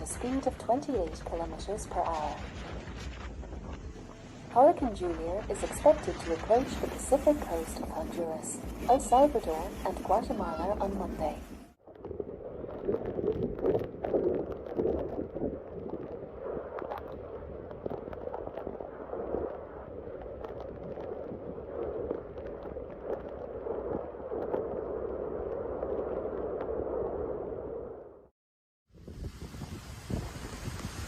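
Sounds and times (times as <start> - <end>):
floodwater rushing: 0.0 - 11.6.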